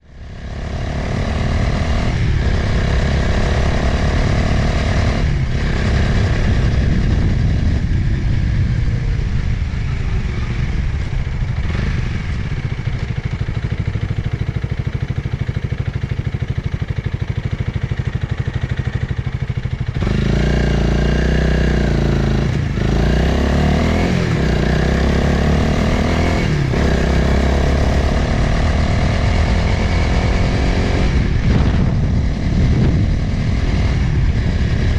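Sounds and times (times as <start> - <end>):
motorcycle engine running: 0.0 - 34.9
wind rushing past helmet: 1.5 - 15.4, 24.0 - 34.9.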